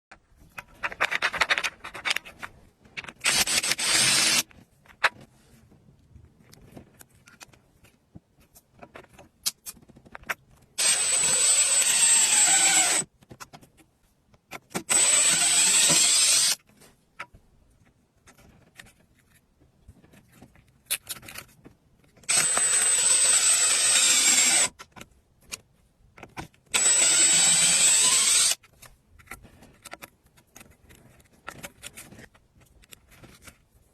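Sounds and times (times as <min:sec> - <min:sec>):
power tool running: 0:03.3 - 0:04.4, 0:10.8 - 0:13.0, 0:14.9 - 0:16.6, 0:22.3 - 0:24.7, 0:26.8 - 0:28.6.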